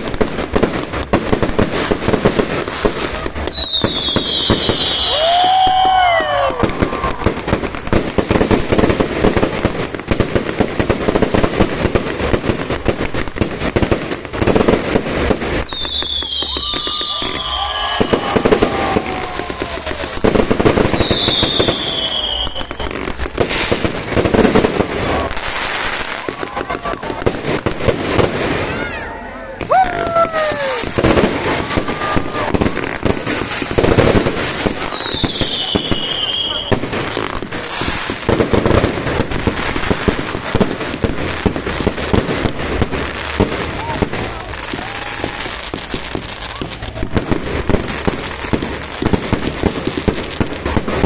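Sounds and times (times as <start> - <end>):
fireworks popping and crackling: 0.0 - 51.0
falling firework whistle: 3.1 - 7.6, 15.6 - 23.8, 28.2 - 36.8, 43.3 - 47.3.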